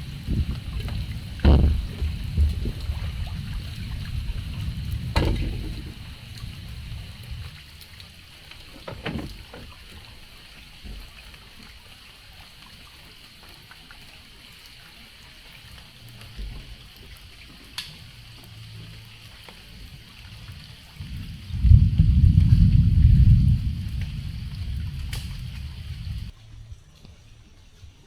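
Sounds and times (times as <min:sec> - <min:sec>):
water splashing and trickling: 0:00.0 - 0:28.0
sharp knocks: 0:00.8 - 0:02.6, 0:05.1 - 0:06.0.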